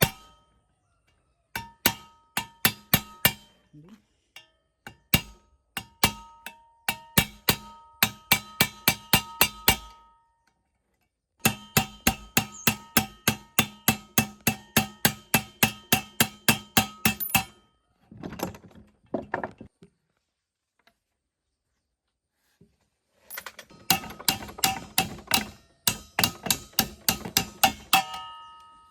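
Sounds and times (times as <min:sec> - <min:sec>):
hammer striking metal: 0:00.0 - 0:00.5, 0:01.6 - 0:03.7, 0:04.9 - 0:10.2, 0:11.4 - 0:17.6, 0:23.7 - 0:28.9
metal scraping: 0:23.2 - 0:28.4.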